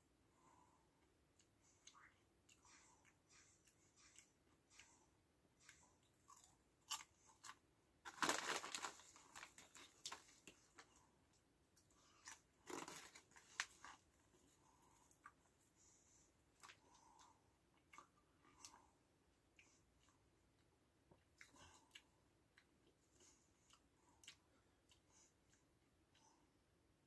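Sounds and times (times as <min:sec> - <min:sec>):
chewing crisp chips: 0:01.4 - 0:11.1, 0:11.8 - 0:15.5.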